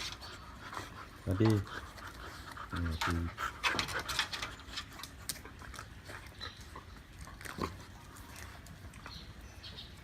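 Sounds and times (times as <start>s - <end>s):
dog mouth clicks and smacks: 3.8s - 6.4s.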